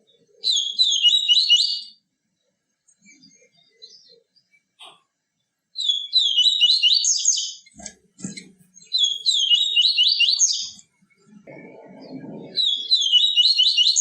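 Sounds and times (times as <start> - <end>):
bird chirping rapidly: 0.4 - 2.0, 5.8 - 10.8, 11.9 - 14.0.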